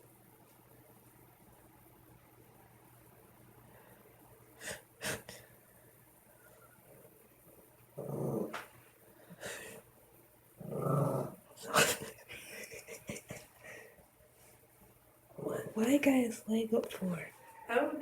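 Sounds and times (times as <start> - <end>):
dog growling: 8.0 - 8.6, 10.6 - 11.5, 15.4 - 15.8.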